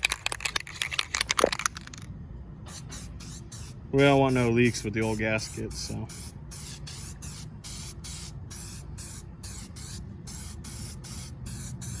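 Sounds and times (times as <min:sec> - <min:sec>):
aerosol can hissing in bursts: 0:02.7 - 0:12.0.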